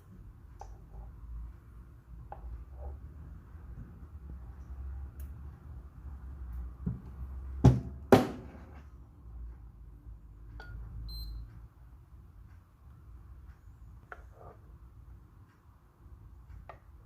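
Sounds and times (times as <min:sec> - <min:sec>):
low steady hum: 0:00.0 - 0:17.0
short high beep: 0:11.1 - 0:11.4.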